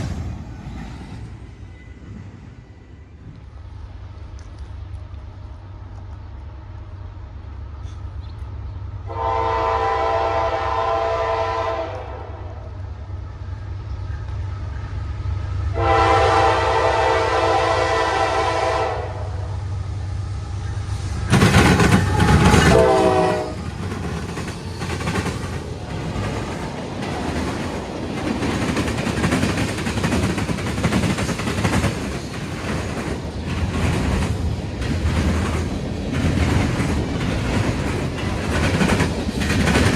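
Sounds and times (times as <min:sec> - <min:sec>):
locomotive rumbling: 0:00.0 - 0:39.9
train horn blasts: 0:09.0 - 0:12.7, 0:15.7 - 0:19.5, 0:21.8 - 0:23.7
train wheels clickety-clack: 0:20.8 - 0:39.9.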